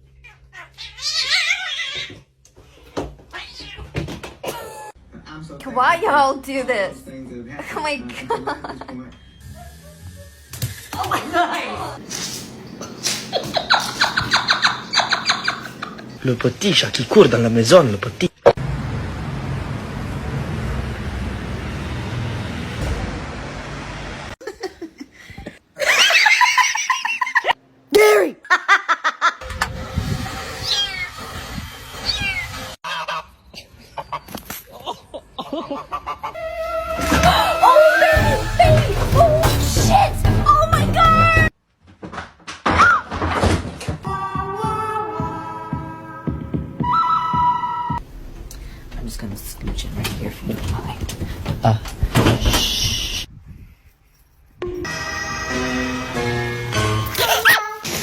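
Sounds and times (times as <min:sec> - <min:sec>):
cat yowling: 0:00.2 - 0:02.2
person laughing: 0:24.4 - 0:29.4, 0:57.1 - 0:57.8
person shouting: 0:27.9 - 0:28.5.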